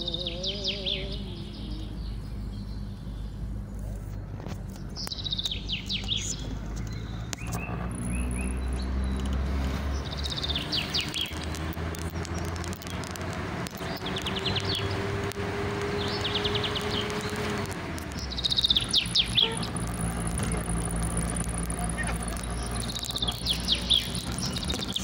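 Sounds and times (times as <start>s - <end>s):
low outdoor rumble: 0.0s - 25.0s
small bird trilling: 15.9s - 20.3s, 20.9s - 25.0s.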